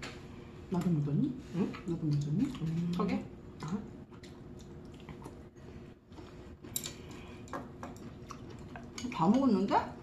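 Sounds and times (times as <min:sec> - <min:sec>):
quiet chewing: 0:01.7 - 0:09.2.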